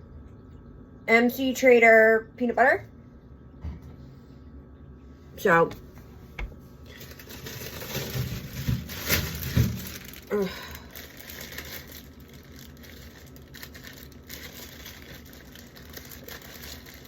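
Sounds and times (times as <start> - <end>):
packaging crinkling: 5.8 - 17.0
packaging rustling: 5.8 - 17.0.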